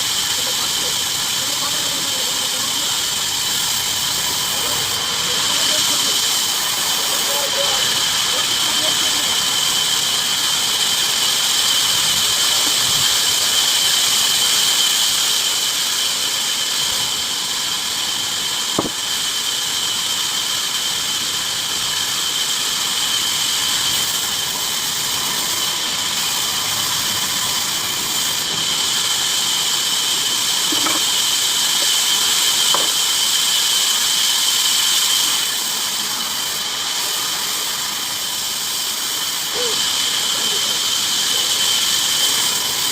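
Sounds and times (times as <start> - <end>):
bandsaw cutting wood: 18.8 - 19.0, 30.1 - 33.1.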